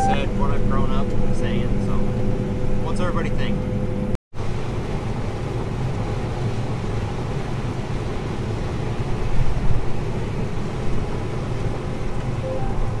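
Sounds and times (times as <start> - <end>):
combine harvester drone: 0.0 - 9.1.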